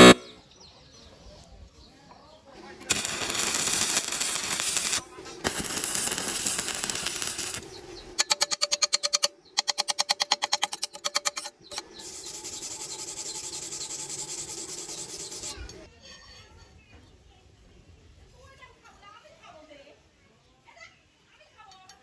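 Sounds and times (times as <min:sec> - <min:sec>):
rapid pulsing buzz: 0:00.0 - 0:00.2, 0:02.9 - 0:07.9, 0:11.7 - 0:15.8
welding arc crackling: 0:00.0 - 0:00.2, 0:02.9 - 0:08.6, 0:11.7 - 0:15.7.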